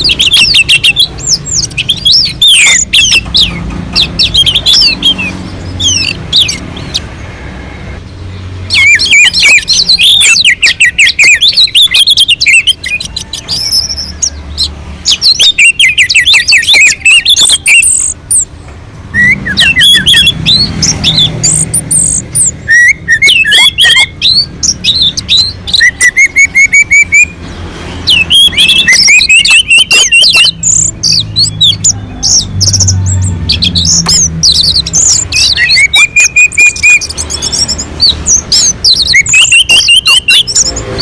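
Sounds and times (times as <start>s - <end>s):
thrush singing: 0.0s - 41.0s.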